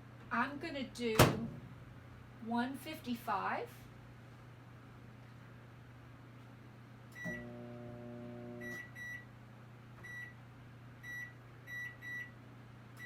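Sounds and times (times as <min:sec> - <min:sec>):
microwave keypad beeps: 0:08.6 - 0:09.2, 0:10.0 - 0:10.3, 0:11.0 - 0:12.3.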